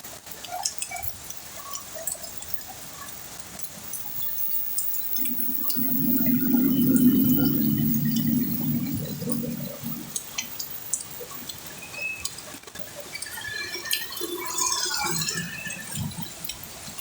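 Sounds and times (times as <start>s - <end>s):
water drips and splashes: 0.0s - 17.0s
heavy rain falling: 0.6s - 17.0s
low steady hum: 3.8s - 11.8s.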